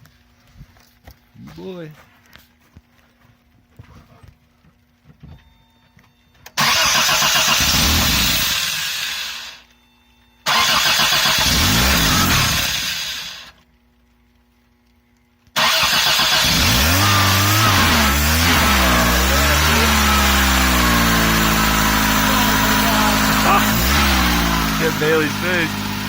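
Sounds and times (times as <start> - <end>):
car engine cranking: 6.6 - 9.6, 10.5 - 13.5, 15.6 - 26.0.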